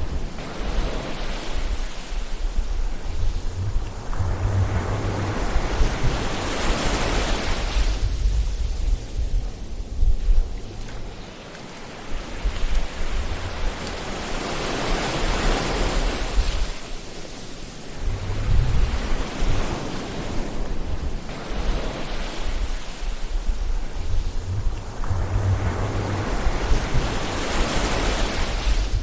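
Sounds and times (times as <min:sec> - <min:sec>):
ocean waves washing ashore: 0:00.0 - 0:29.0
low rumbles: 0:01.6 - 0:11.4, 0:17.9 - 0:20.0, 0:20.6 - 0:29.0.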